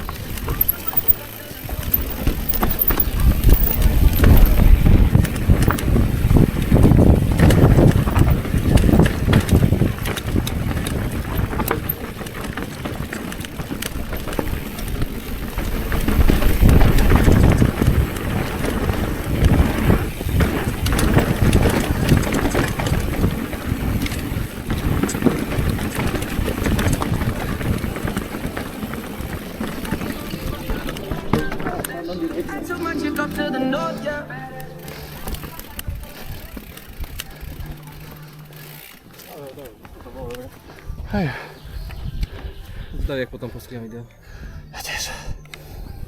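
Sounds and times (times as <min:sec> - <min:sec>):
bike knocks and rattles: 0:00.0 - 0:32.0
bike rolling over rough ground: 0:00.0 - 0:32.6, 0:34.8 - 0:43.0
wind buffeting microphone: 0:01.7 - 0:32.0, 0:40.8 - 0:44.7.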